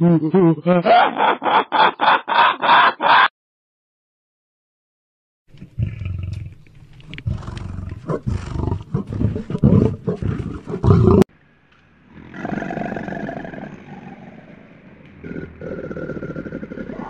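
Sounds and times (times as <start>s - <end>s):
lion roaring: 5.6s - 11.3s, 12.0s - 17.0s.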